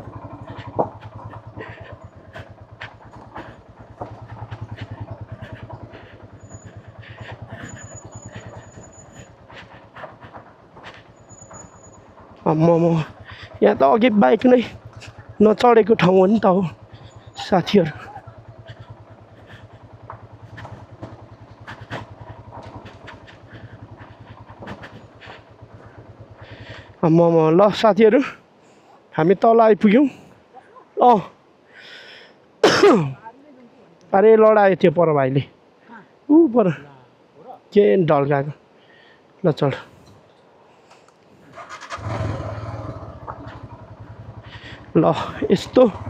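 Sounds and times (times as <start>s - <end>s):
motorcycle engine running: 0.0s - 27.9s, 41.5s - 46.0s.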